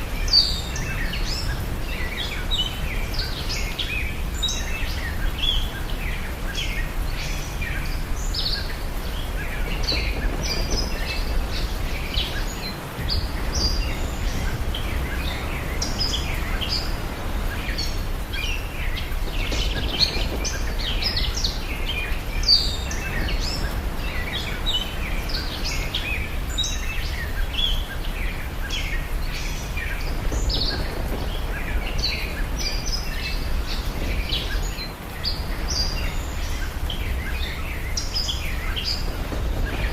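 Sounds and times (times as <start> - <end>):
small birds chirping: 0.0 - 39.9
steady low rumble: 8.0 - 39.9.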